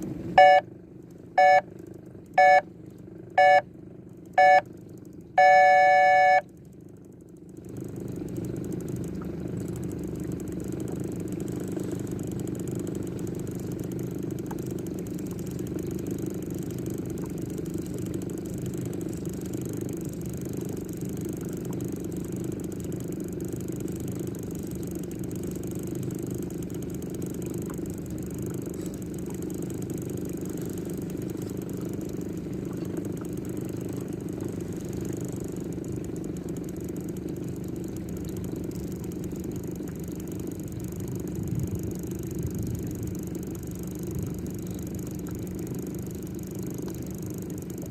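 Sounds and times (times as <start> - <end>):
boat engine running: 0.0 - 47.9
electronic beep: 0.4 - 0.6, 1.4 - 1.6, 2.4 - 2.6, 3.4 - 3.6, 4.4 - 4.6, 5.4 - 6.4.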